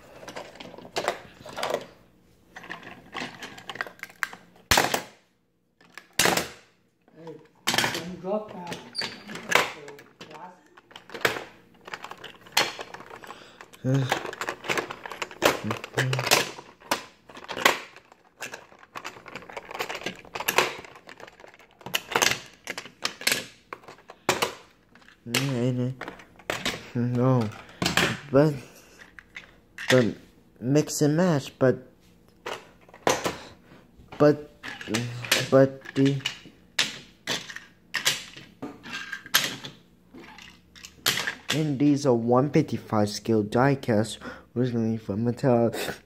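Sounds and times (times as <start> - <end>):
toy parts clicking and rattling: 2.6 - 4.5, 5.8 - 30.2, 34.6 - 41.8.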